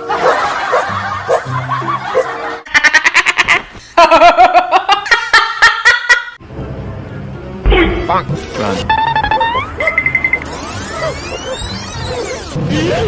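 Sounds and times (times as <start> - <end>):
background music: 0.0 - 3.1, 6.4 - 13.0
quick rhythmic laughter: 0.1 - 6.4.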